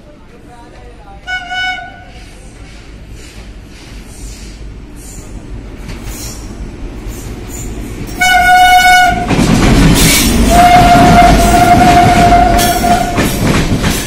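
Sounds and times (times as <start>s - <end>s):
train rumbling past: 0.0s - 14.0s
train horn blast: 1.2s - 2.2s, 8.2s - 9.3s, 10.5s - 13.3s.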